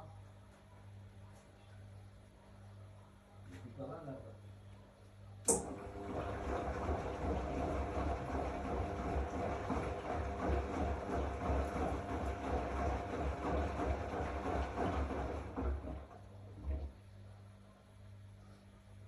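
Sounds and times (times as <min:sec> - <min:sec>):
sharp click: 0:05.4 - 0:05.7
washing machine running: 0:05.4 - 0:17.6.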